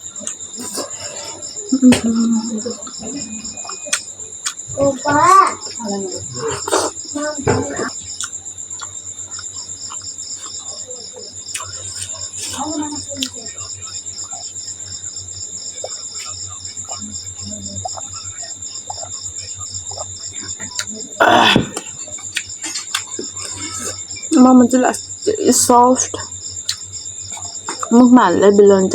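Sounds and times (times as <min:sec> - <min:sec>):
crickets chirping: 0:00.0 - 0:28.9
person chewing food: 0:00.2 - 0:01.6, 0:02.9 - 0:05.0, 0:05.6 - 0:10.6, 0:11.4 - 0:12.6, 0:19.8 - 0:24.1, 0:26.6 - 0:27.9.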